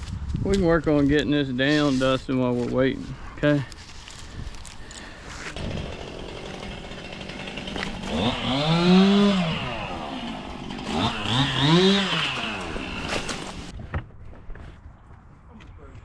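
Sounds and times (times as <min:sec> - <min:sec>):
chainsaw engine revving: 0:05.4 - 0:13.7.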